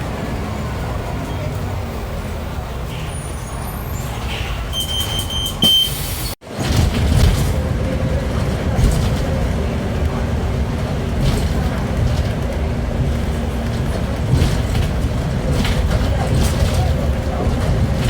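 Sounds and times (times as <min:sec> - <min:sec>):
bus engine drone: 0:00.0 - 0:18.0
rattles: 0:06.5 - 0:18.0.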